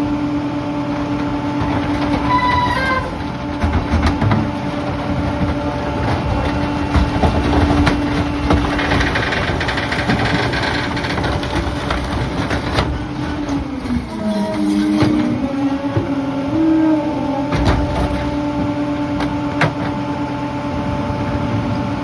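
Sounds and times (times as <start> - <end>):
garbage truck engine running: 0.0 - 22.0
hydraulic whine: 0.0 - 22.0
debris cracking and knocking: 1.0 - 15.3, 17.5 - 20.0.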